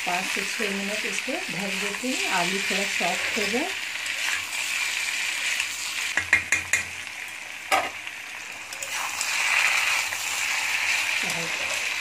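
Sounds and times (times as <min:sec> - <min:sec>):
potatoes and onions sizzling in oil: 0:00.0 - 0:12.0
metal spatula knocking on pan: 0:06.2 - 0:06.9.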